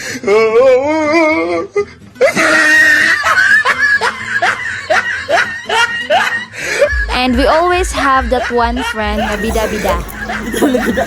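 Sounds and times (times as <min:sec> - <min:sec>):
person shrieking: 0:00.2 - 0:03.5
person laughing: 0:02.2 - 0:11.0.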